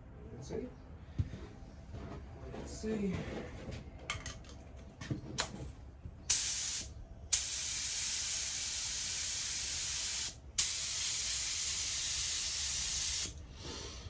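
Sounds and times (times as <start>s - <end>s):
paint spray gun hissing: 6.3s - 13.8s.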